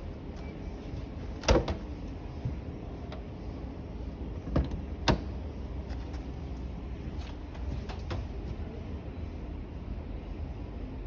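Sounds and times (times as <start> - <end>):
steady low hum: 0.0 - 11.0
washing machine door knocks and clicks: 1.4 - 1.8.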